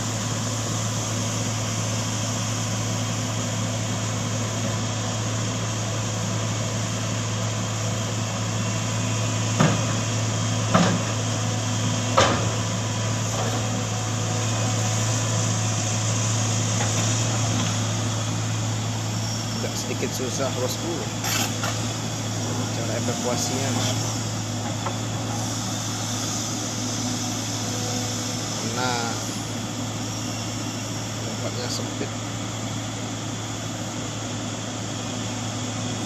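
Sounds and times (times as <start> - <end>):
vehicle engine humming: 0.0 - 36.0.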